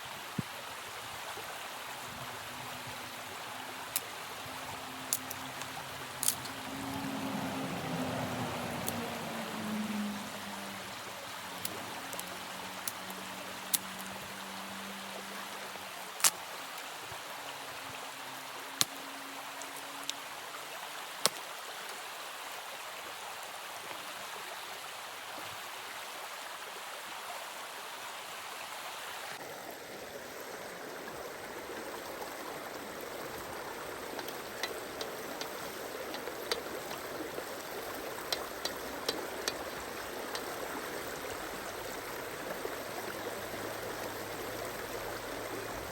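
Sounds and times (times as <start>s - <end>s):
running water rushing: 0.0s - 45.9s
light ticks: 8.8s - 9.1s, 34.0s - 40.6s.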